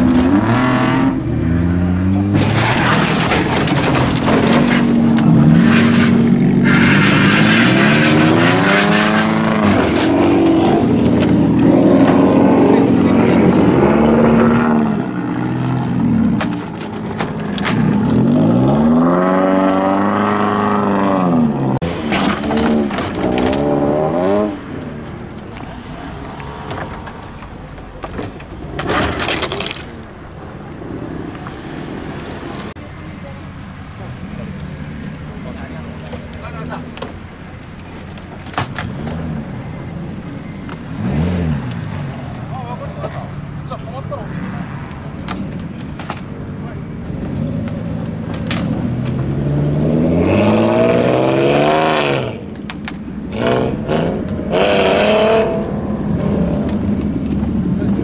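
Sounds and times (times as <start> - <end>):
car engines running: 0.0 - 58.0
car underside scraping ground: 2.2 - 20.1, 21.8 - 33.4, 34.4 - 49.5
car engine idling: 32.3 - 41.0.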